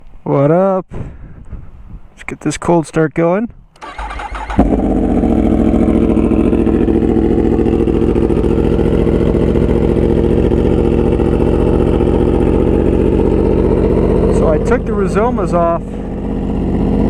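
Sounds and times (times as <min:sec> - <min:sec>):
starter motor cranking: 0:03.8 - 0:04.8
motorcycle engine idling: 0:03.9 - 0:17.0.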